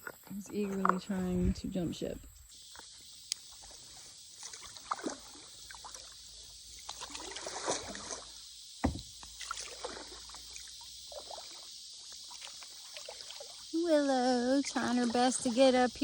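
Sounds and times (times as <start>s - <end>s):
steady high hiss: 0.0s - 16.0s
water sloshing against hull: 0.0s - 16.0s
paddle strokes splashing: 3.5s - 16.0s
knock on kayak hull: 8.8s - 9.1s.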